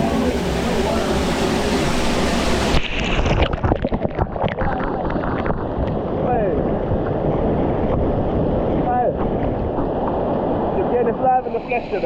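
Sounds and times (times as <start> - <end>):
water splashing and sloshing: 0.0 - 11.3
rushing water: 0.0 - 12.0.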